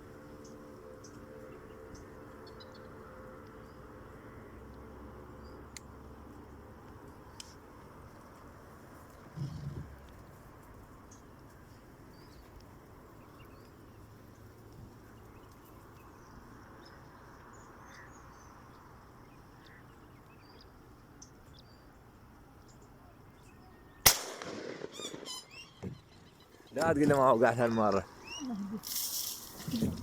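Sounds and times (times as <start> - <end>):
shotgun shot: 24.0 - 25.5
faint bird chirps: 24.9 - 26.8.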